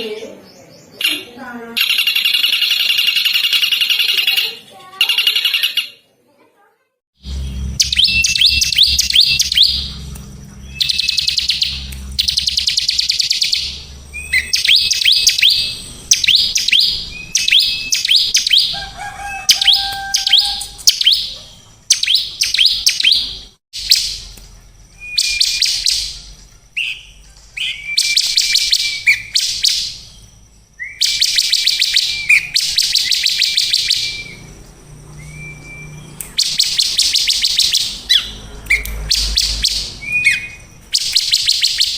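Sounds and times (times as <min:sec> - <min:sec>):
lower whistle: 0:07.3 - 0:10.0, 0:35.2 - 0:41.9
songbird trilling: 0:07.3 - 0:41.9.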